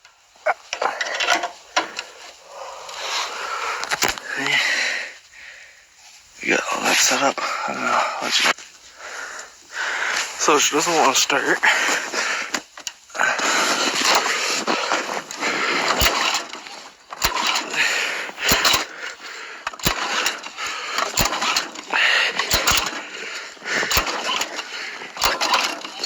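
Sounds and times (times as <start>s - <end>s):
engine recoil starter pulls: 0.6s - 4.8s, 9.4s - 26.0s
sharp clicks: 3.7s - 4.6s, 12.5s - 26.0s.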